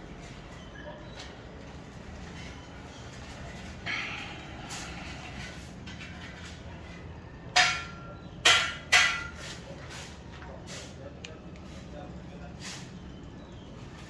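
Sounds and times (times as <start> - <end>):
hammer blows with metallic ring: 7.5 - 9.4.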